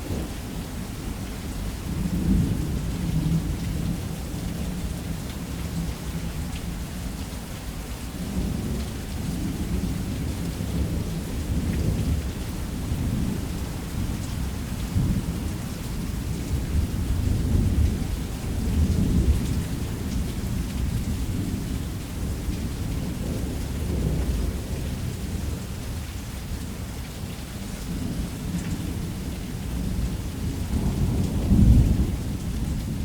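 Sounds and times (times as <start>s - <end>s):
steady rain: 0.0s - 33.0s
rolling thunder: 29.8s - 33.0s.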